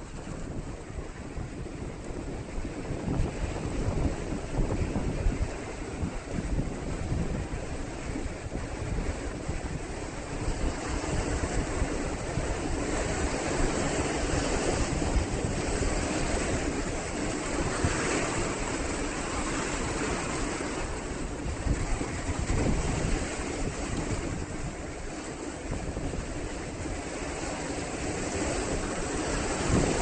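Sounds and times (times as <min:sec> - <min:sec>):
ocean surf washing in: 0:00.0 - 0:30.0
wind buffeting microphone: 0:00.0 - 0:30.0.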